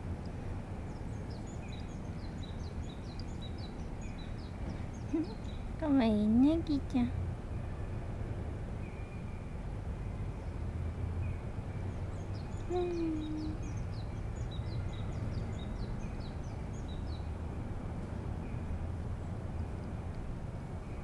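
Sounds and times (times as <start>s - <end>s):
low background rumble: 0.0s - 21.0s
birds chirping: 0.9s - 7.0s, 10.4s - 17.3s.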